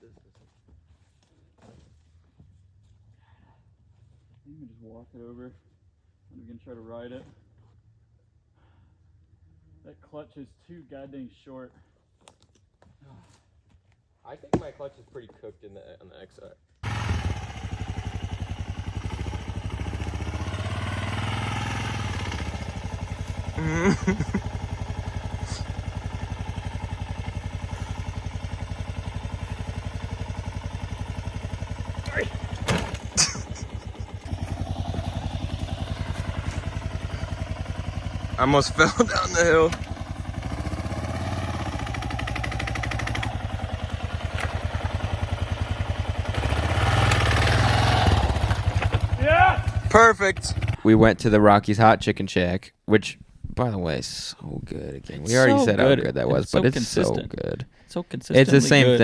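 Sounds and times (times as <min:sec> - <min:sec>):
motorcycle engine running: 0:16.8 - 0:50.9.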